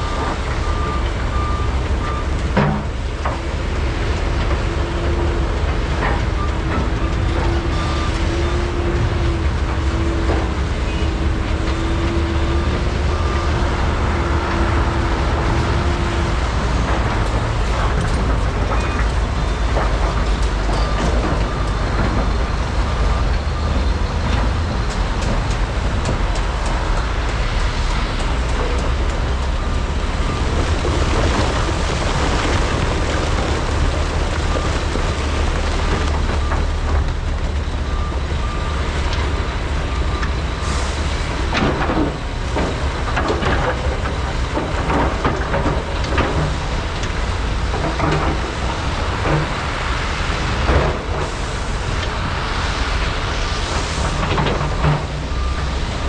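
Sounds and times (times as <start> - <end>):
excavator engine drone: 0.0 - 56.0
rocks clanking in buckets: 28.1 - 37.9.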